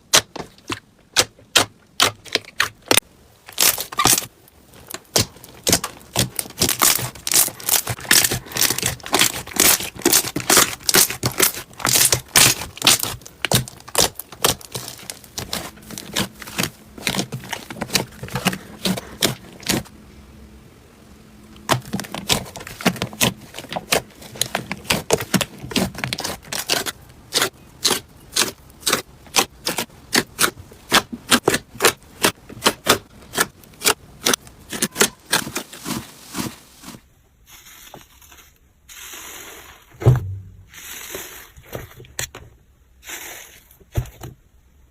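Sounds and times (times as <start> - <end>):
slime crackling and popping: 0.1 - 19.8, 21.6 - 35.4.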